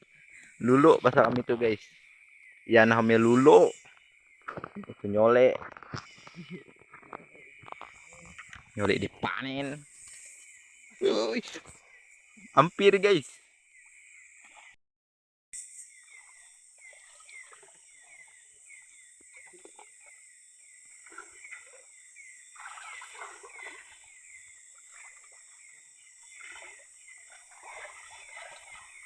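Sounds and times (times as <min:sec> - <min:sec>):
frogs chirping: 0:00.0 - 0:14.8, 0:15.6 - 0:29.0
insects humming: 0:00.0 - 0:14.8, 0:15.6 - 0:29.0
wading water sloshing: 0:16.1 - 0:29.0.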